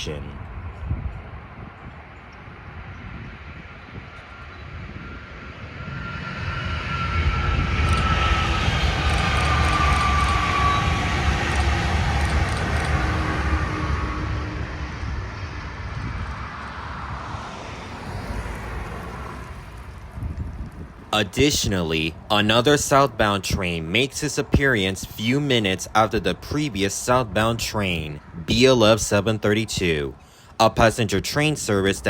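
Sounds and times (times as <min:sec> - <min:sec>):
high-speed train passing: 0:00.0 - 0:32.0
train whine dropping in pitch: 0:03.6 - 0:20.0.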